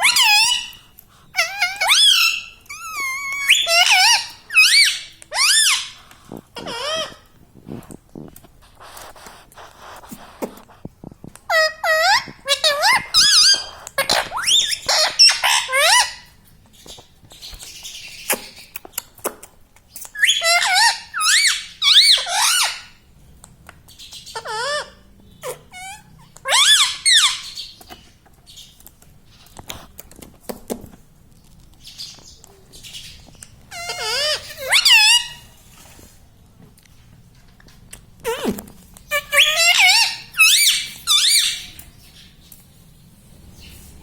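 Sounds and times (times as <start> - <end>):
parrot high-pitched calls: 0.0 - 6.0, 6.6 - 7.3, 11.5 - 16.4, 20.1 - 23.0, 24.2 - 27.8, 32.9 - 35.6, 38.2 - 41.9.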